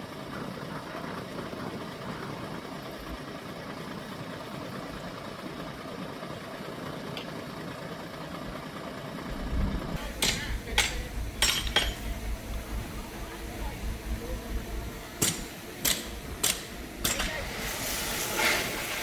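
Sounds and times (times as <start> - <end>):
diesel engine running: 0.0 - 19.0
deep rumble: 9.3 - 18.7
sharp knocks: 9.4 - 17.5.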